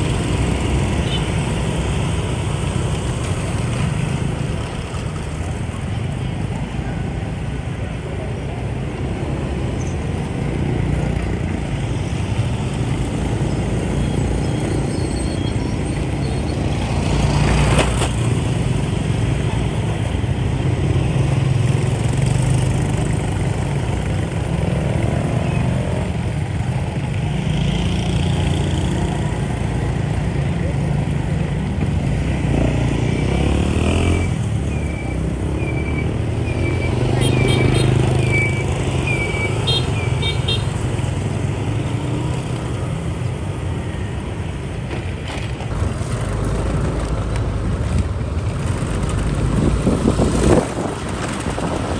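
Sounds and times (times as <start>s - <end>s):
motorbike engines humming: 0.0s - 51.9s
road noise: 0.0s - 51.9s
engine passing by: 32.2s - 34.6s, 45.7s - 51.9s.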